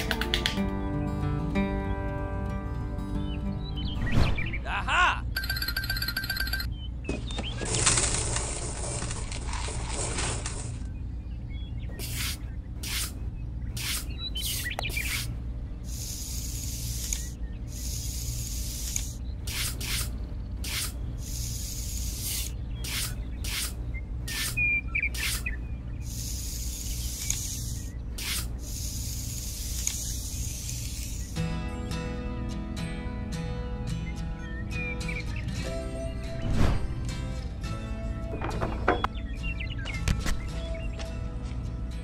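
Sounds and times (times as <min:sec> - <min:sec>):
trowel scraping sand: 0:12.0 - 0:13.2, 0:18.0 - 0:24.6.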